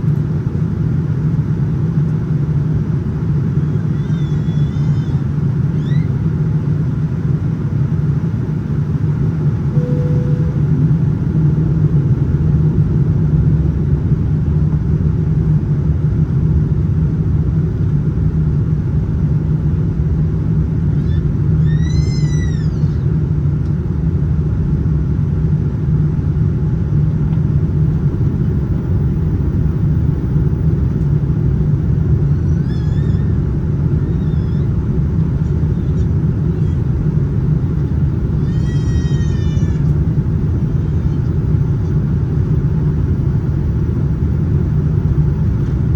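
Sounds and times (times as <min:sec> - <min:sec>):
airliner cabin engine rumble: 0:00.0 - 0:45.9
high-pitched cry: 0:03.9 - 0:06.1, 0:21.0 - 0:23.1, 0:32.2 - 0:36.9, 0:38.4 - 0:40.0.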